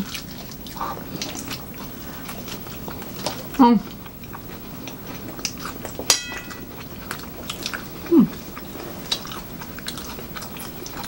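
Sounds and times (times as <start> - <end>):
chewing and biting: 0.0 - 11.0
cutlery clinking on a plate: 6.1 - 6.7
person humming mm: 8.1 - 8.4.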